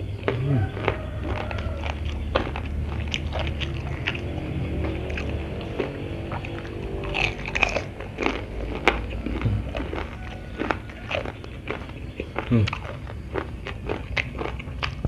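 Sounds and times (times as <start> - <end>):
crunchy food bitten and chewed: 0.0 - 15.0.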